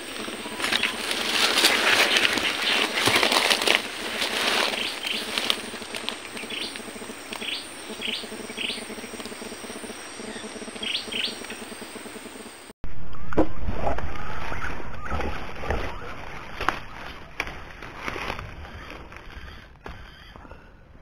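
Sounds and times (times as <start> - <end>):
birds chirping: 0.0 - 12.7, 14.2 - 21.0
steady outdoor hiss: 0.0 - 12.8
low rumbling noise: 0.0 - 19.8.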